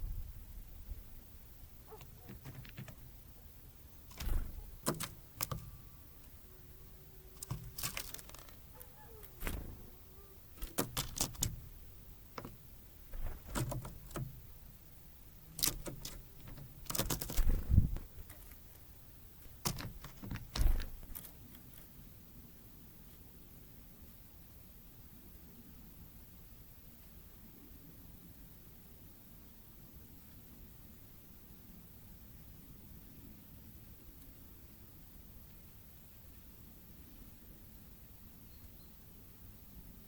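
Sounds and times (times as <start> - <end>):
birds pecking at bird feeder: 1.9 - 22.0.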